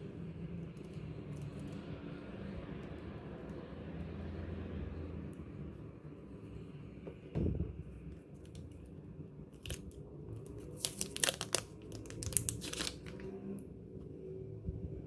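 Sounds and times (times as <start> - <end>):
packaging crinkling and tearing: 9.6 - 13.3.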